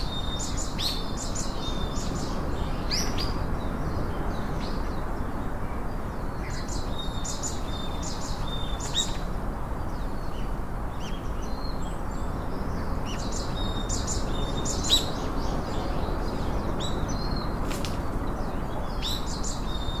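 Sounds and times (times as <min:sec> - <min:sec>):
small birds chirping: 0:00.0 - 0:20.0
steady background noise: 0:00.0 - 0:20.0.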